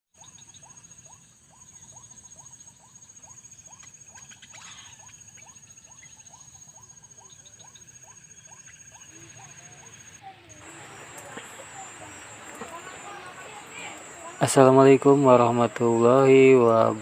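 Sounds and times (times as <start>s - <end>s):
steady high whine: 7.6s - 17.0s.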